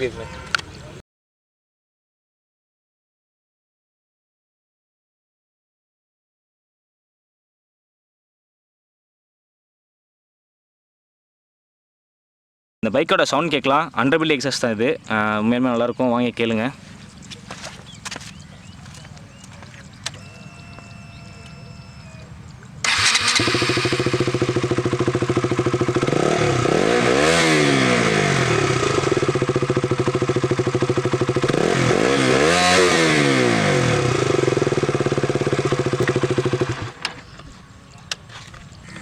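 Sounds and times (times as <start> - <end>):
motorcycle engine starting and idling: 17.1 - 38.3
motorcycle engine revving: 22.8 - 37.1.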